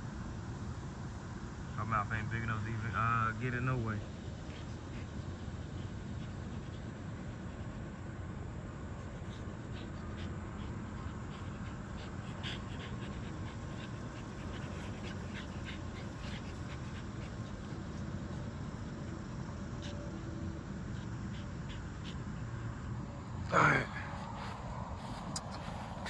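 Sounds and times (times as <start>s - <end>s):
puppy panting: 2.5s - 23.5s, 24.1s - 26.0s.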